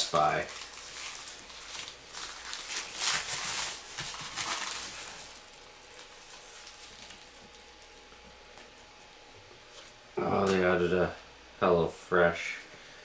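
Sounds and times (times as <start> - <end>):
package being torn open: 0.0 - 7.3.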